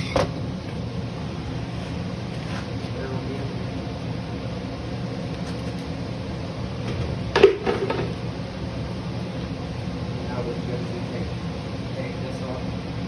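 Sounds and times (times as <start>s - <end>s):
workshop hum: 0.0s - 13.0s.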